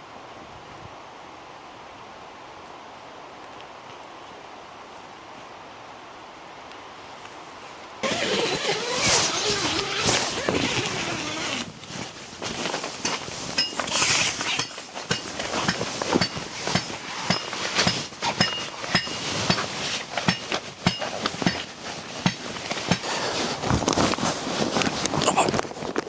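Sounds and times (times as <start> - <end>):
metallic clink: 13.0 - 19.7, 20.3 - 21.7.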